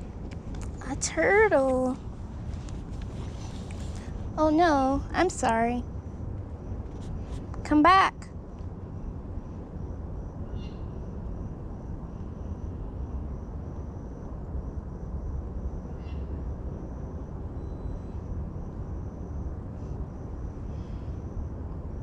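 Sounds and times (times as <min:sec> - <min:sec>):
steady low rumble: 0:00.0 - 0:22.0
faint high-pitched pulsing call: 0:10.4 - 0:11.2, 0:17.5 - 0:18.3.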